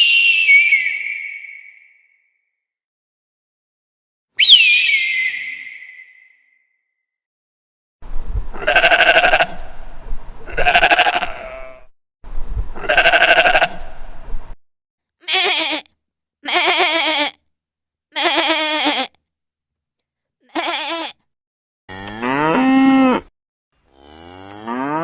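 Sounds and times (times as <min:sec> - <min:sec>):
livestock bleating: 0:08.6 - 0:09.6, 0:10.5 - 0:11.9, 0:12.8 - 0:13.8, 0:15.2 - 0:17.4, 0:18.2 - 0:19.2, 0:20.5 - 0:21.2
low rumble: 0:09.6 - 0:10.5, 0:13.8 - 0:14.6.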